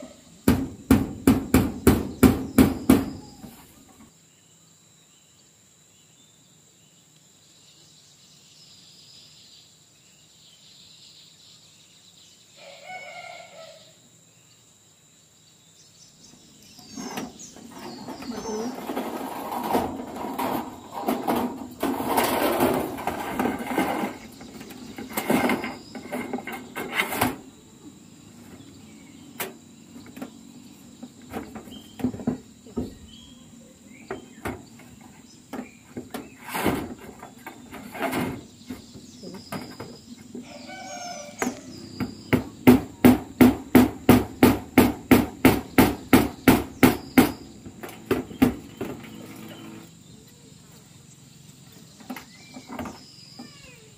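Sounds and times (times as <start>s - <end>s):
high insect drone: 0.0s - 53.9s
hammer striking metal roofing: 0.4s - 3.2s, 18.8s - 27.4s, 42.0s - 49.0s.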